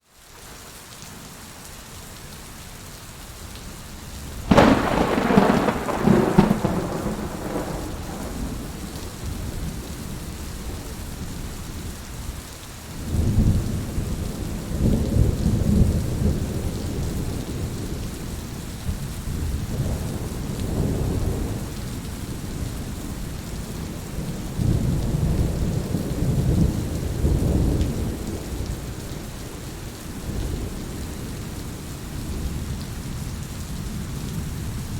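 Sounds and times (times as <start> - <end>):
heavy rain falling: 0.0 - 34.9
low rolling thunder: 4.4 - 12.3, 13.0 - 34.9
loud thunderclap: 4.5 - 9.8.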